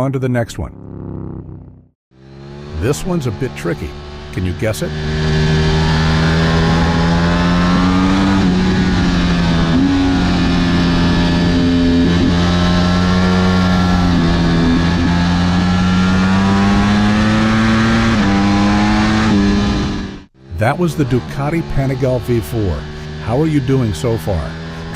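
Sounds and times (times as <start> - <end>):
motorcycle engine accelerating: 0.6 - 24.9.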